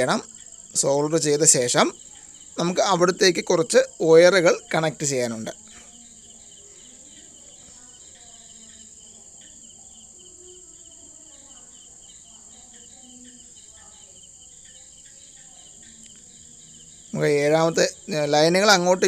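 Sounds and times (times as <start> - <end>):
constant high hiss: 0.0 - 19.0
crickets chirping: 0.0 - 19.0.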